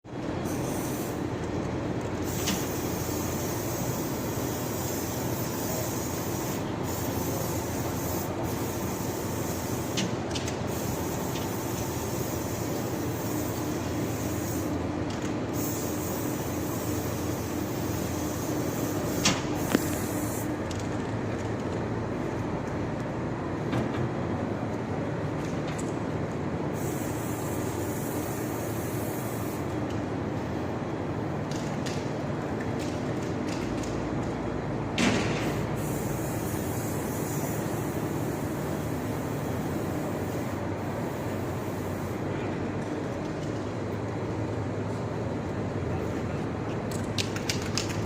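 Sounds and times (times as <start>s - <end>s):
machinery hum: 0.1s - 48.0s.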